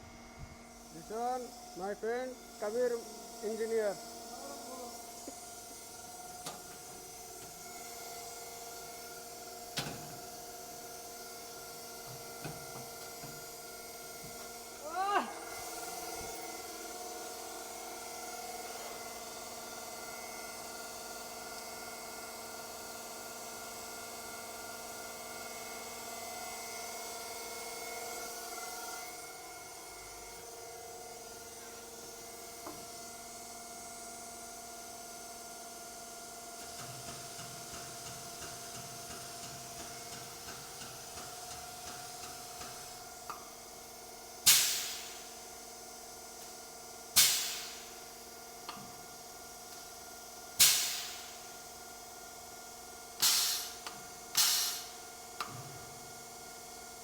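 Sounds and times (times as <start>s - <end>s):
hiss: 44.4s - 45.7s, 46.5s - 49.0s, 50.6s - 51.6s, 53.2s - 55.1s.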